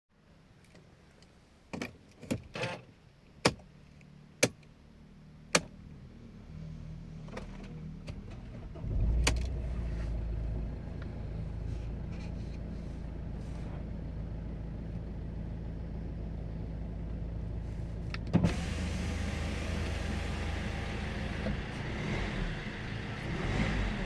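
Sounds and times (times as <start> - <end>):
car engine starting and idling: 5.5 - 24.0.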